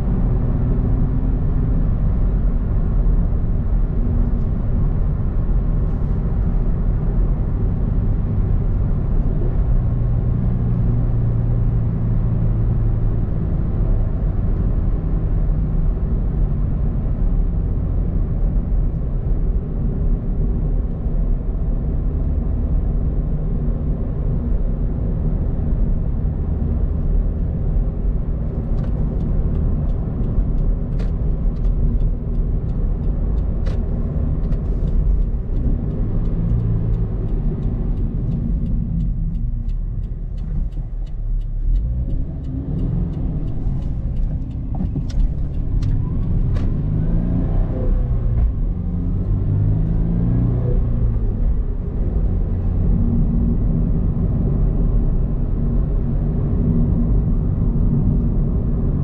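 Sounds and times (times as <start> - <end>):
car engine at low revs: 0.0 - 59.0
tyre and road noise: 0.0 - 59.0.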